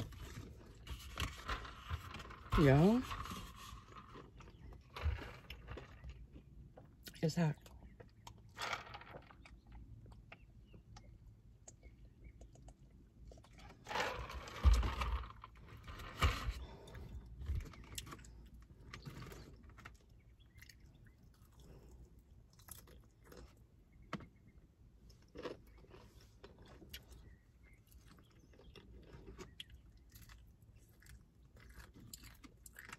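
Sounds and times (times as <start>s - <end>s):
chewing chicken wings: 17.0s - 23.9s, 25.0s - 32.9s.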